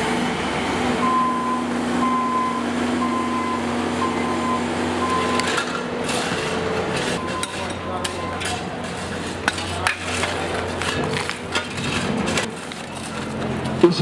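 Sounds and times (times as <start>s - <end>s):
reversing alarm beeping: 0.0s - 9.0s.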